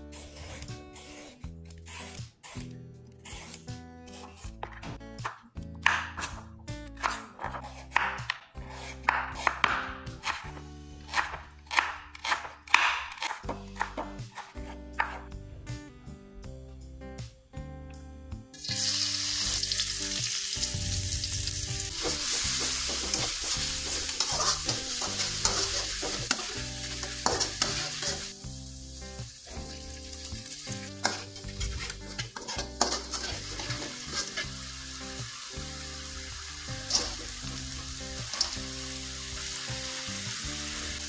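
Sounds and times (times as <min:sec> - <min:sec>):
chillies sizzling in hot oil: 0:18.6 - 0:41.0
metal spatula scraping wok: 0:21.3 - 0:28.4, 0:29.5 - 0:34.6, 0:36.8 - 0:38.8.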